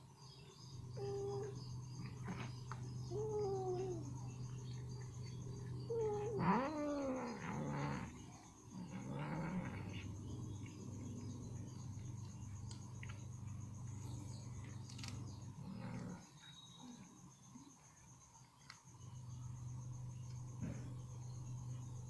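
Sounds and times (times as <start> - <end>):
cat growling: 0.9 - 13.2, 13.8 - 17.0
cat crying: 1.0 - 1.6, 3.1 - 4.2, 5.9 - 8.2.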